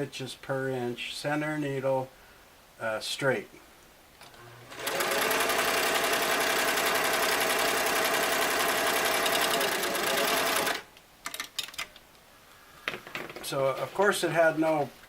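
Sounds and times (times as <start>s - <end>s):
sewing machine running: 4.3s - 10.9s.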